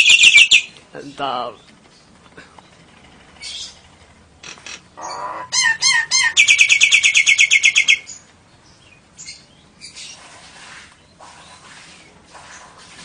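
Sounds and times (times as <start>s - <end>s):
songbird chirps and trill: 0.0s - 10.2s.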